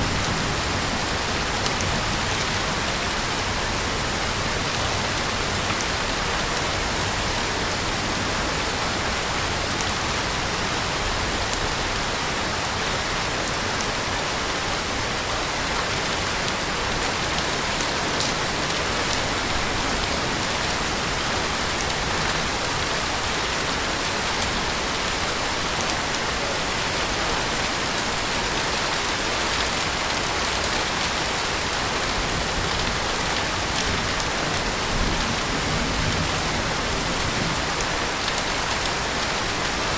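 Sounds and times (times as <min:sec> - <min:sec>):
heavy rain falling: 0:00.0 - 0:39.9
raindrop ticks: 0:01.0 - 0:03.5, 0:04.2 - 0:11.7, 0:13.5 - 0:14.0, 0:16.4 - 0:23.5, 0:24.4 - 0:26.4, 0:32.0 - 0:39.8.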